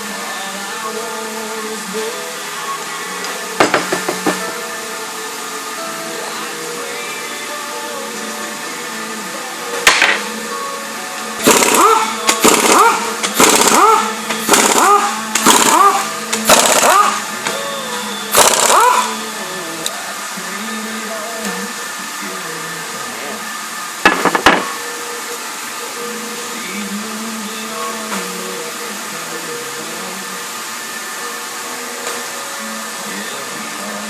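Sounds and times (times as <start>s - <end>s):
power tool bursts rising in pitch: 11.4s - 19.7s.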